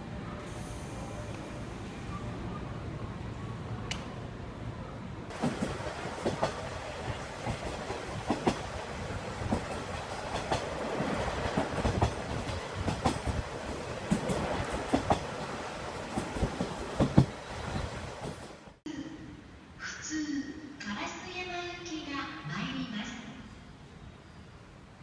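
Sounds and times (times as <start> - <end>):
train rumbling on rails: 0.0 - 18.8.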